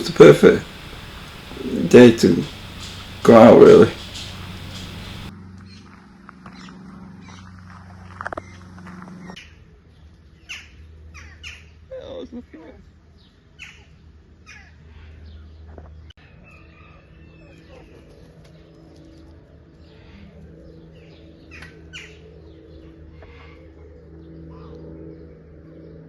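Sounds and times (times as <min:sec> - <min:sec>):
birds chirping: 0:00.0 - 0:05.3
steady low hum: 0:00.0 - 0:05.3.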